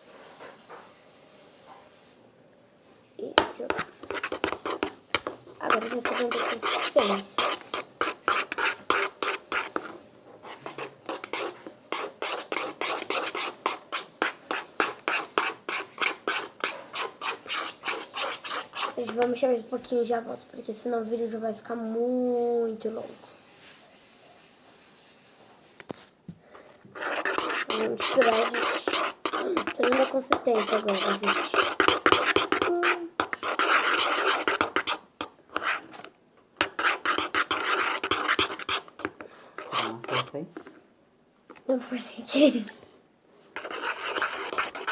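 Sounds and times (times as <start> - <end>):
slime being stirred wetly: 3.2 - 19.5, 26.9 - 40.8, 43.5 - 44.9.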